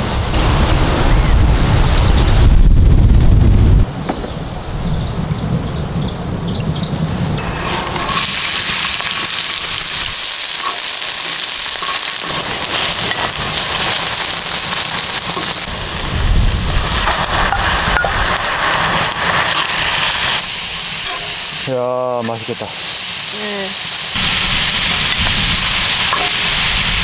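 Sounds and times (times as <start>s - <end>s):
low rumble: 0.0s - 7.4s
onions sizzling in oil: 7.4s - 27.0s.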